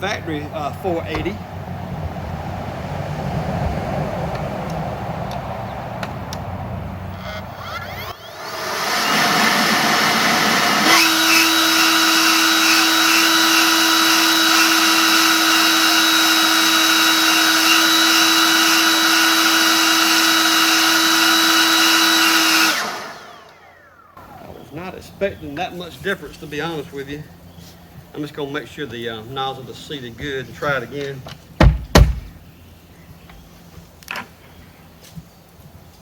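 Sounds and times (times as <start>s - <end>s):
leaf blower running: 8.0s - 28.0s.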